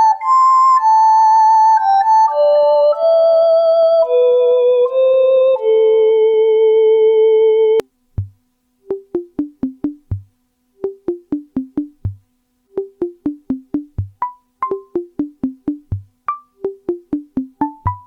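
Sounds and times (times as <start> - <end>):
sequenced clicky synth notes: 8.2 - 18.0.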